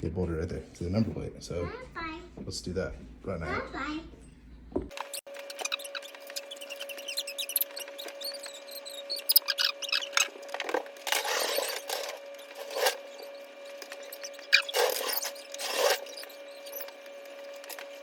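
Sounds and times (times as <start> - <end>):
steady high hum: 0.0 - 18.0
loud scraping: 5.0 - 18.0.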